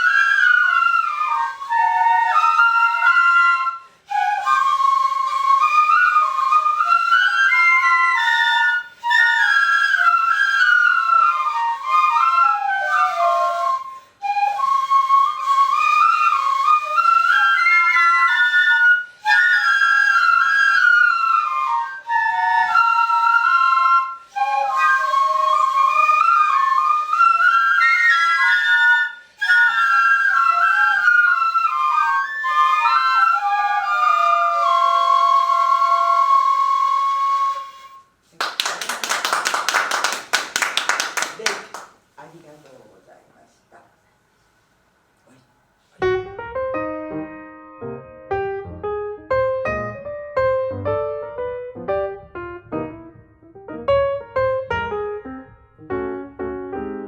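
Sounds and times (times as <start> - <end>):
bamboo flutes ensemble melody: 0.0 - 41.9.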